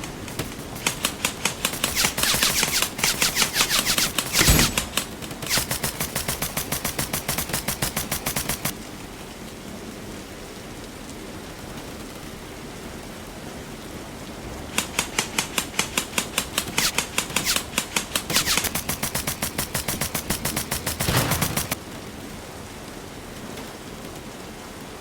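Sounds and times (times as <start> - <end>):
airsoft gun firing full auto: 0.0 - 8.7, 14.8 - 21.8.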